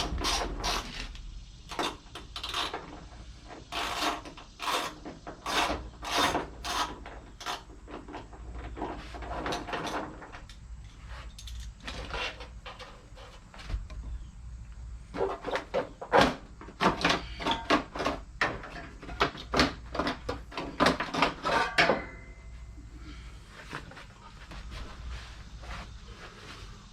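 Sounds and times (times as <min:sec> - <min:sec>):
hand tools clattering and knocking: 0:15.1 - 0:22.5.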